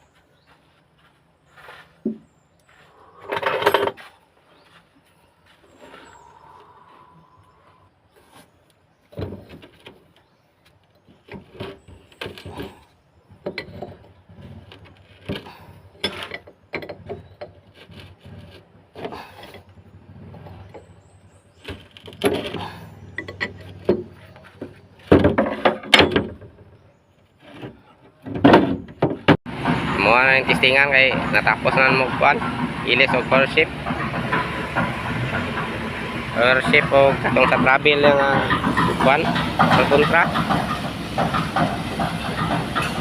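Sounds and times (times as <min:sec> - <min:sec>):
metal tools scraping and knocking: 0:03.2 - 0:04.1, 0:11.2 - 0:20.9, 0:21.6 - 0:26.6, 0:36.4 - 0:43.0.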